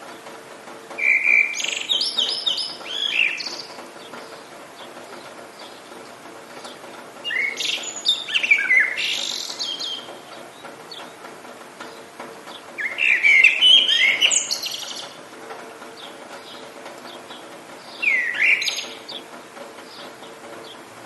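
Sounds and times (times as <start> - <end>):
songbird warbling: 1.0 - 5.9, 6.7 - 11.2, 12.5 - 15.2, 16.0 - 19.3.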